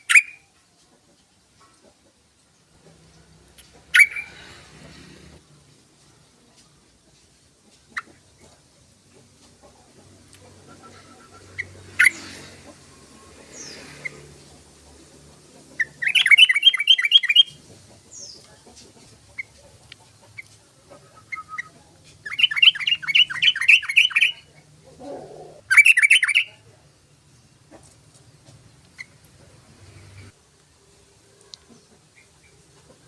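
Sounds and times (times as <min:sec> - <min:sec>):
bird singing rapid repeated notes: 0:03.9 - 0:04.3, 0:15.7 - 0:18.4, 0:21.0 - 0:24.6, 0:25.7 - 0:26.6.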